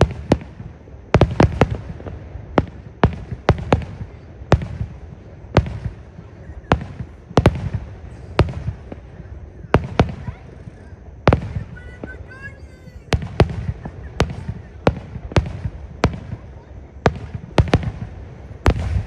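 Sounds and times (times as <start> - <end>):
fireworks bursting with bangs: 0.0 - 19.0.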